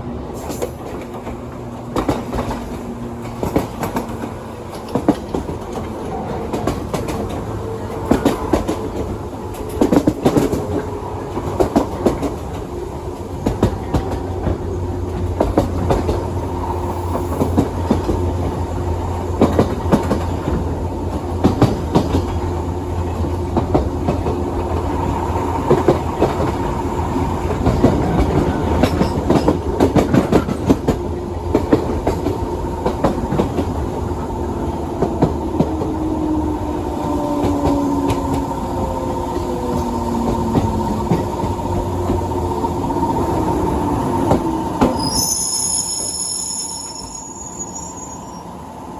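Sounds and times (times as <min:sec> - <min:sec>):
wheels clacking over rail joints: 0:00.4 - 0:45.3.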